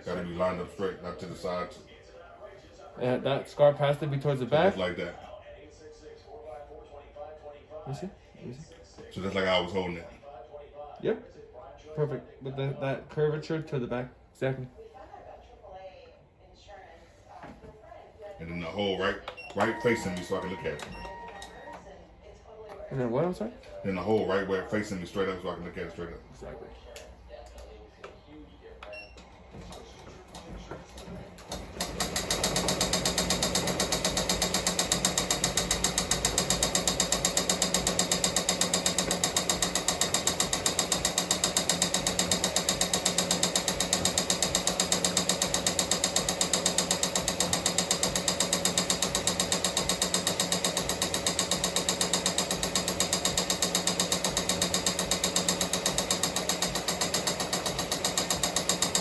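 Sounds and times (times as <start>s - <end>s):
embroidery machine stitching: 19.4s - 21.8s, 29.7s - 59.0s.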